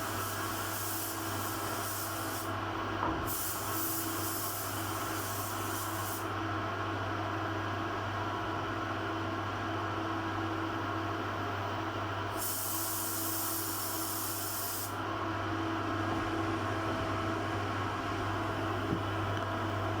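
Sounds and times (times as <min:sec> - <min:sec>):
compressed air hissing: 0:00.0 - 0:02.5, 0:03.2 - 0:06.3, 0:12.4 - 0:15.0.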